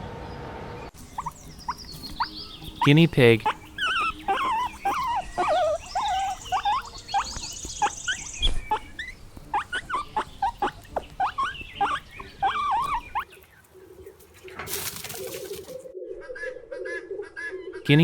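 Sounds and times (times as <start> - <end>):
guinea pig squeaking: 1.0 - 13.7.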